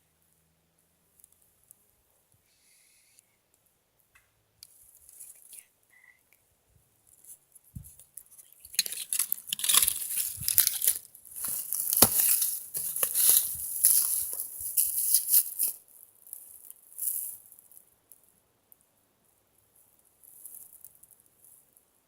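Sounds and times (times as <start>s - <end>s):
rustling and crunching of steps: 7.8s - 15.8s
sharp crack: 8.8s - 15.8s.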